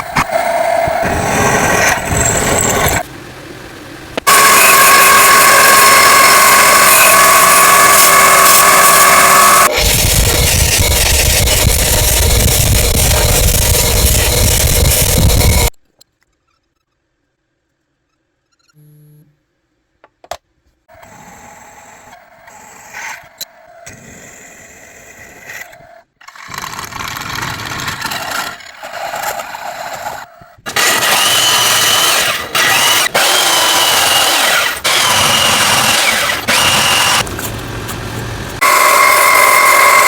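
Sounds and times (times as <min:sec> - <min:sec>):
small electric tool whining: 0:04.2 - 0:15.7, 0:29.2 - 0:37.2, 0:38.2 - 0:40.0.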